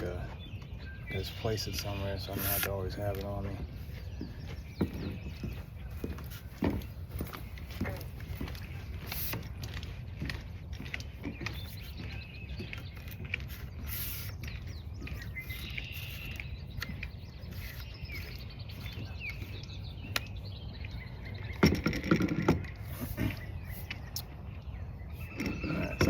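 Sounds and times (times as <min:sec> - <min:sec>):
small birds chirping: 0:00.0 - 0:26.0
handling clicks and knocks: 0:02.6 - 0:13.5, 0:18.1 - 0:24.3.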